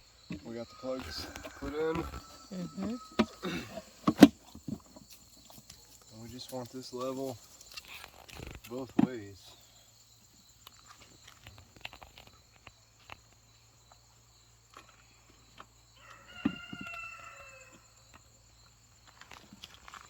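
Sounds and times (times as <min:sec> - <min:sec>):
rooster crowing: 0:00.6 - 0:04.0, 0:16.0 - 0:18.0.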